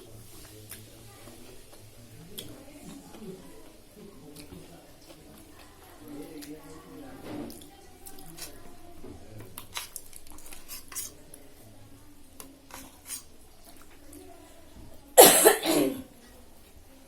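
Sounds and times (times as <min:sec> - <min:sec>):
person coughing: 0:15.2 - 0:16.0.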